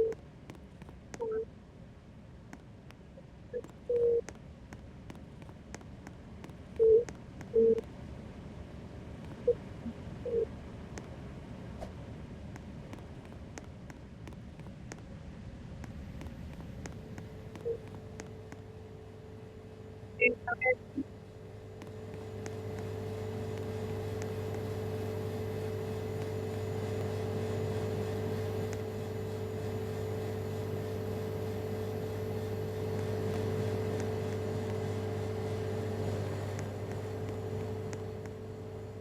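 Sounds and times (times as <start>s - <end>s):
steady mechanical hum: 0.0s - 39.0s.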